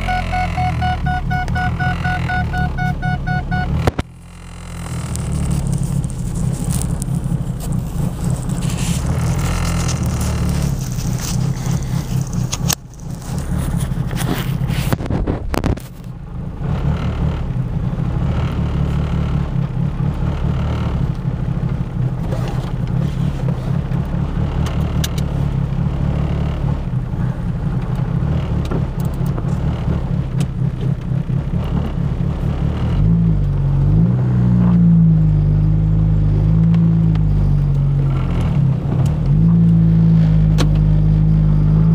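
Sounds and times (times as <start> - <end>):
car engine running unevenly: 0.0 - 41.9.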